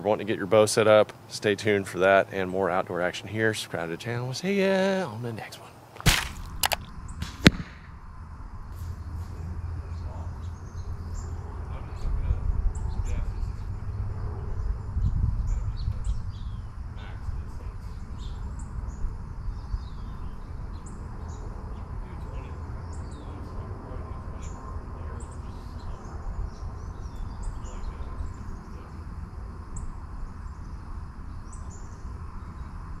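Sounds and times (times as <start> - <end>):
small birds chirping: 8.8 - 33.0.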